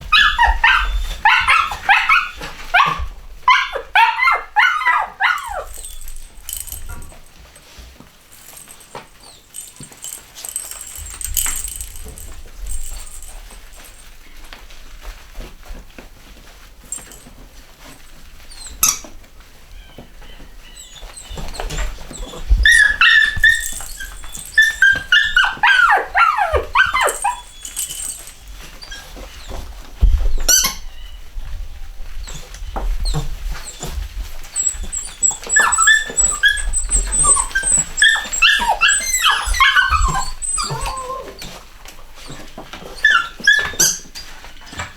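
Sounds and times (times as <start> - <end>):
puppies squeaky cries: 0.1 - 7.2, 8.4 - 14.1, 19.8 - 29.7, 30.4 - 31.1, 32.2 - 41.6, 42.2 - 44.9.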